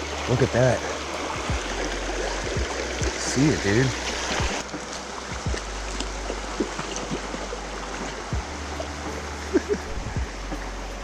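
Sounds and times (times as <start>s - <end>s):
creek water flowing: 0.0s - 11.0s
soft low thumps: 1.3s - 8.7s, 9.7s - 10.7s.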